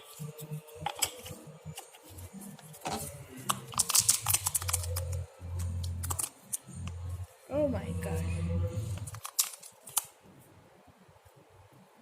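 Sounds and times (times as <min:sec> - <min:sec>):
slime squelching: 0:00.0 - 0:07.4, 0:08.0 - 0:10.1
faint background music: 0:00.0 - 0:12.0.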